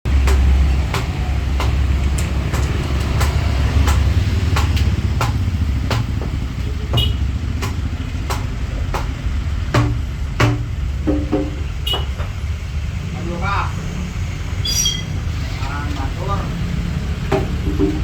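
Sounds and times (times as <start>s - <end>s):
deep drum bass tone: 0.1s - 12.6s, 16.9s - 18.0s.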